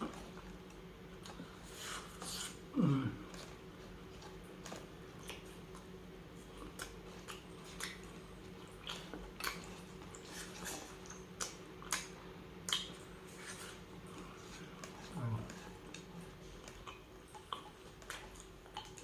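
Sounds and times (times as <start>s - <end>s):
faint steady hum: 0.0s - 19.0s
wet mouth clicks while chewing: 6.5s - 19.0s.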